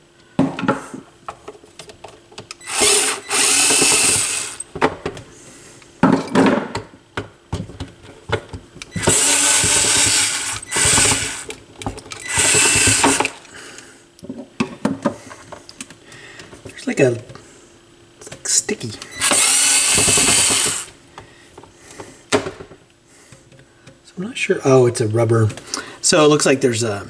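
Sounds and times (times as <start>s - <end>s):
cordless drill running: 2.6s - 4.7s, 8.9s - 11.5s, 12.2s - 13.4s, 19.1s - 21.0s.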